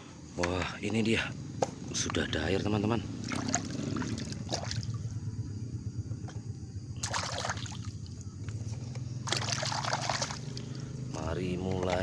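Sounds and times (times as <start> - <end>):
steady low hum: 0.0 - 12.0
short splashes: 3.2 - 5.0, 7.0 - 8.0, 9.2 - 10.9
water sloshing in a basin: 3.2 - 5.2, 7.0 - 8.3, 9.2 - 12.0.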